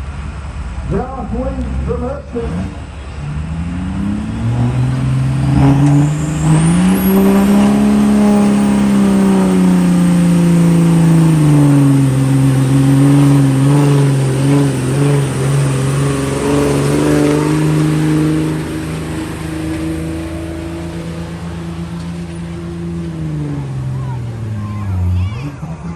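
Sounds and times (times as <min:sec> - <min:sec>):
engine running at high revs: 0:01.6 - 0:25.9.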